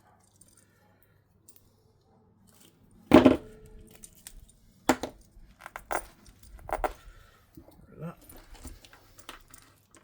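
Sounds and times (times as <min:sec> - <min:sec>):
small parts clinking: 0:02.5 - 0:10.0.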